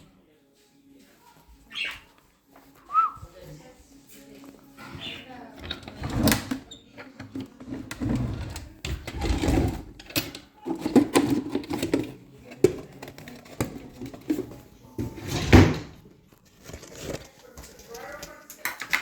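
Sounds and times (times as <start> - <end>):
objects knocking and clicking: 9.9 - 14.6
rustling of handled objects: 16.2 - 18.6.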